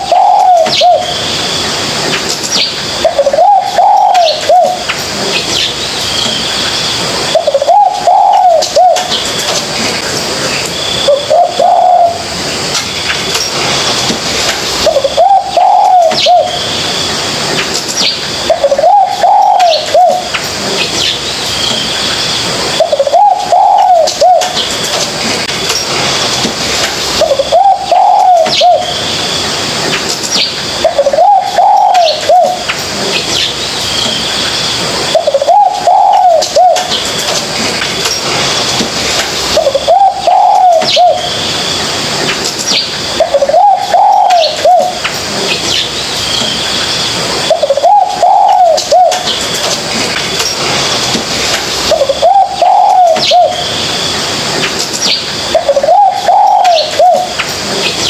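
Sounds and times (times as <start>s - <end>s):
dove cooing: 0.0s - 1.2s, 3.0s - 4.9s, 7.3s - 9.3s, 11.0s - 12.3s, 14.8s - 16.6s, 18.5s - 20.4s, 22.7s - 24.6s, 27.2s - 29.0s, 30.8s - 32.7s, 35.1s - 37.0s, 39.5s - 41.4s, 43.2s - 45.0s, 47.4s - 49.4s, 51.8s - 53.7s, 55.5s - 57.4s.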